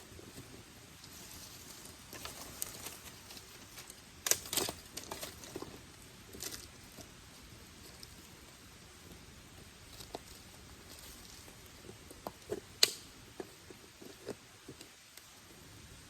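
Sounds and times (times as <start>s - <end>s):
dry twigs and leaves crackling: 0.3s - 8.3s.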